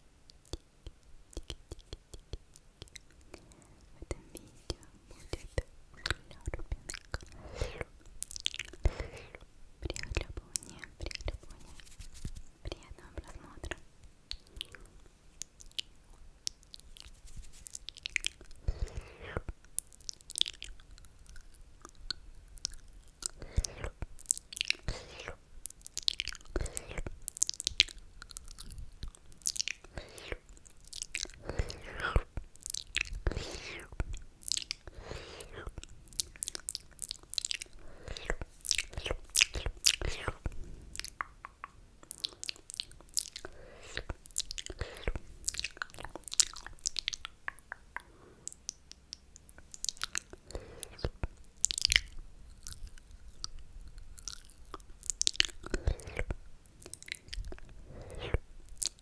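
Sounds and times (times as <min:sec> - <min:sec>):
wet lip and tongue clicks: 0:00.2 - 0:59.0
mouth slurping: 0:31.2 - 0:36.5, 0:49.6 - 0:51.2, 0:55.0 - 0:59.0.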